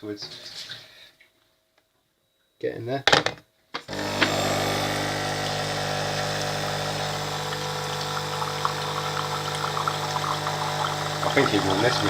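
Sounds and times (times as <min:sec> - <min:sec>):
coffee machine pump humming: 0:03.9 - 0:12.0.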